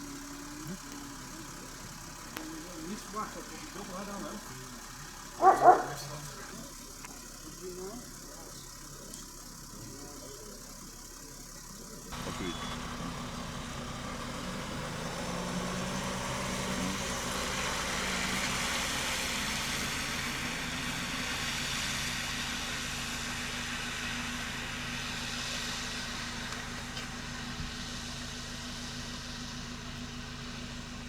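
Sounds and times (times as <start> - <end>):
vehicle engine idling: 0.0 - 31.0
broad hiss: 12.1 - 31.0.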